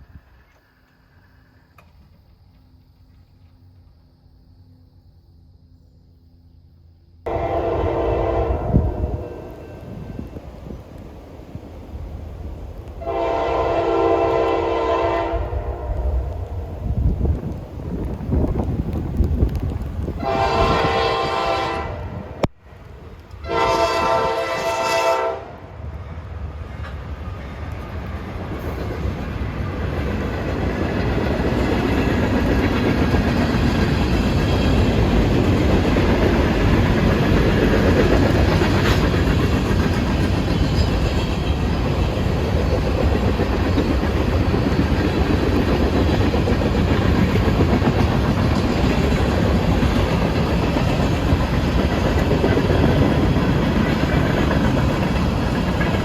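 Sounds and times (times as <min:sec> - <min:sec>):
train passing rumble: 0:00.0 - 0:56.0
train horn: 0:07.3 - 0:10.3, 0:13.0 - 0:16.9, 0:20.2 - 0:22.3, 0:23.4 - 0:25.8.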